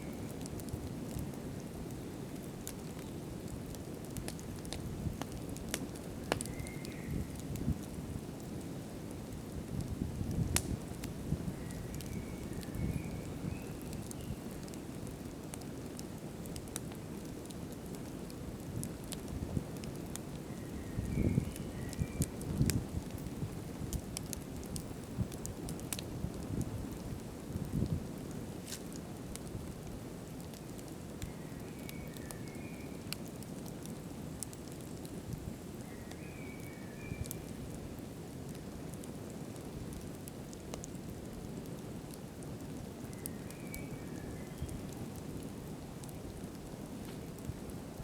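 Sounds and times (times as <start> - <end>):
campfire flames rushing: 0.2 - 6.6, 7.2 - 32.3, 37.3 - 48.0
wood crackling: 0.2 - 20.5, 21.4 - 48.0.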